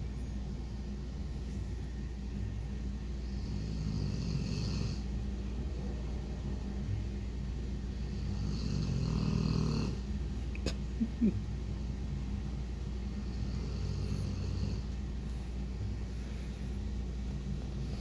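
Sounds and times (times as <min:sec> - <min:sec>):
dog snoring: 0:03.2 - 0:05.2, 0:07.9 - 0:10.1, 0:13.2 - 0:15.0.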